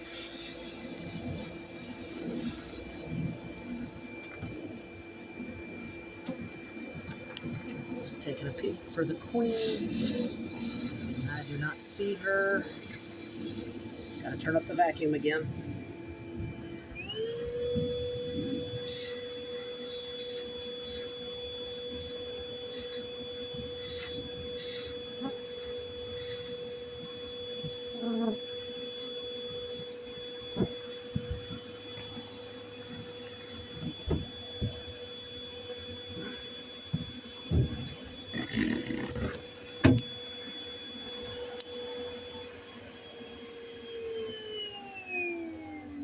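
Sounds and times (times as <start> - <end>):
vacuum motor running: 0.0 - 46.0
knocks and thumps: 33.8 - 34.8, 36.9 - 40.1.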